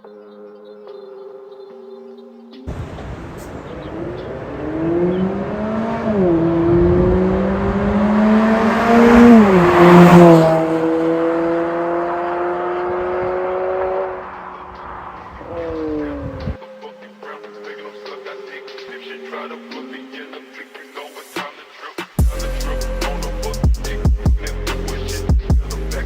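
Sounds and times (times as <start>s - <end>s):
car exhaust accelerating: 2.7s - 16.6s.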